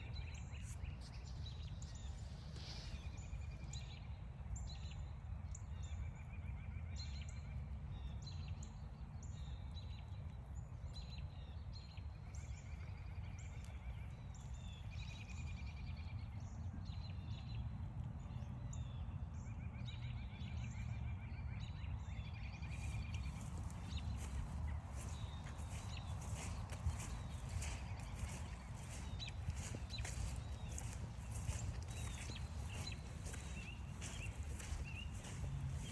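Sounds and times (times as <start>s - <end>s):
birds calling and singing: 22.0s - 35.9s
steady low rumble: 22.8s - 35.9s.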